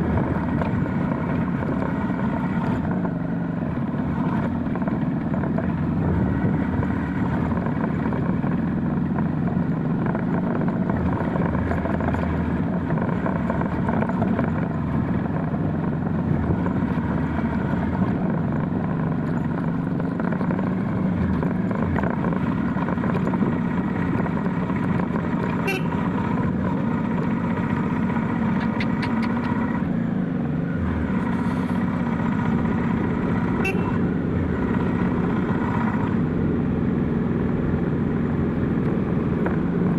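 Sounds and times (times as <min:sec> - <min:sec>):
motorcycle engine cruising: 0:00.0 - 0:39.9
road and wind noise: 0:00.0 - 0:39.9
sharp clicks: 0:28.5 - 0:29.6.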